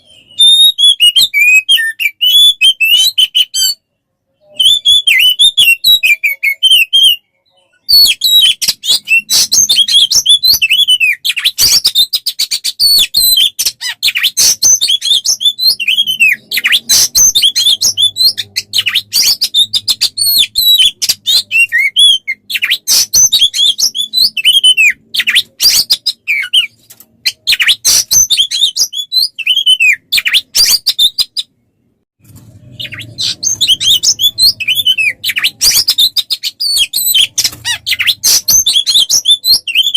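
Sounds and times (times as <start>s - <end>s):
songbird singing: 32.7s - 39.9s.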